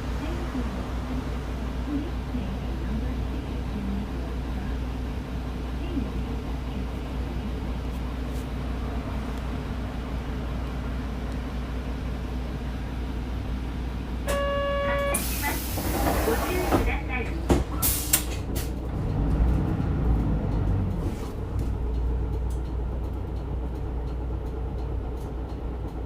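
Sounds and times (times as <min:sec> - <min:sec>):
bus engine rumble: 0:00.0 - 0:26.0
short pitched tone: 0:14.3 - 0:15.3.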